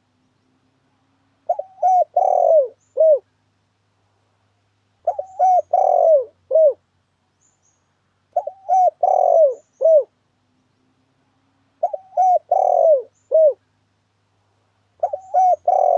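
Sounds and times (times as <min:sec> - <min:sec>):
dove cooing: 0:01.4 - 0:03.3, 0:05.0 - 0:06.8, 0:08.4 - 0:10.1, 0:11.8 - 0:13.6, 0:15.0 - 0:15.9.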